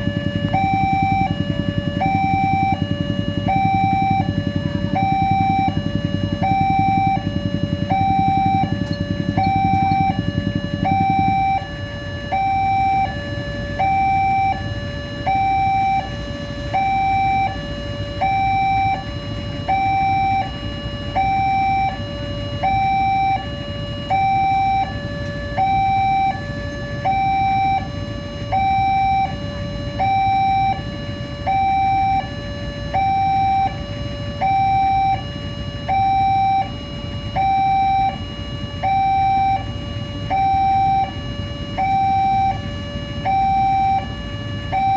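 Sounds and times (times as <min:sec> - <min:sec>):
steady low rumble: 0:00.0 - 0:14.0
two-tone level-crossing alarm: 0:00.0 - 0:44.9.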